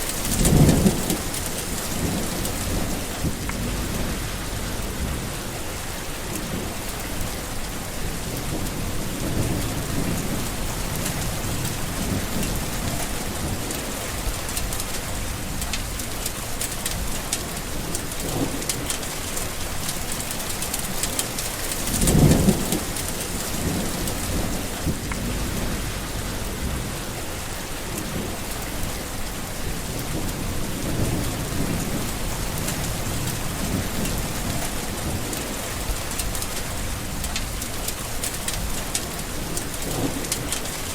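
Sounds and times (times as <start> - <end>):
thunderclap: 0.0 - 7.4, 20.8 - 29.0, 29.6 - 37.7
steady rain falling: 0.0 - 40.9
thunder rumbling: 0.0 - 40.9.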